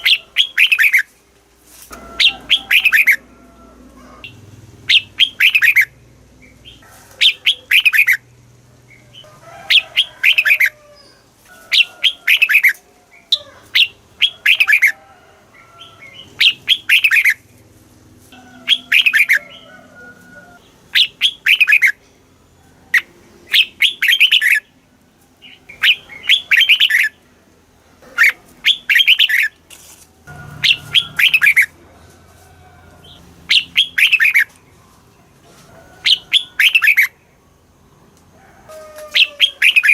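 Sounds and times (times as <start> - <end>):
bird singing whistled phrases: 0.0 - 1.1, 4.9 - 5.9, 21.0 - 22.0, 23.5 - 24.6, 25.8 - 27.1, 28.2 - 29.5, 33.5 - 34.5.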